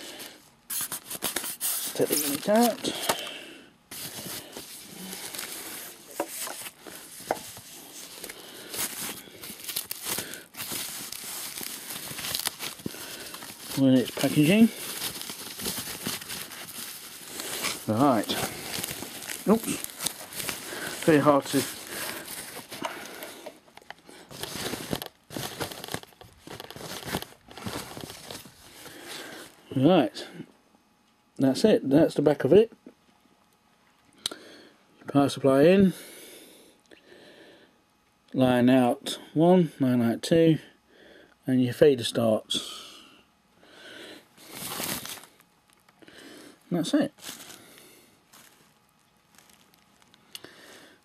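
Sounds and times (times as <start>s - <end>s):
packaging crinkling and rustling: 0.0s - 29.6s, 44.4s - 46.0s, 46.8s - 50.8s.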